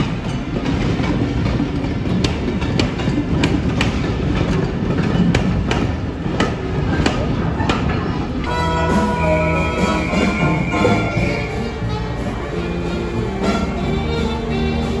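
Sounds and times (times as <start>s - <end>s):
train wheels clicking over rail joints: 0.0s - 8.5s
train rumble: 0.0s - 15.0s.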